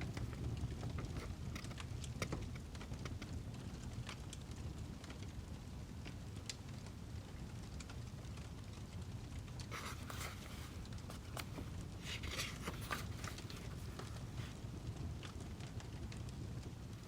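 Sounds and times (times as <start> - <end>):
wood fire crackling: 0.0 - 17.0
rustling bursts: 9.6 - 14.6.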